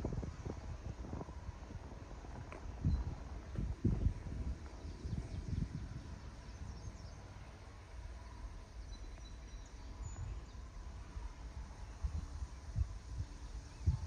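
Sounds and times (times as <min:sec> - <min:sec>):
wind on microphone: 0:00.0 - 0:07.4, 0:09.9 - 0:14.0
faint bird chirps: 0:08.8 - 0:10.7.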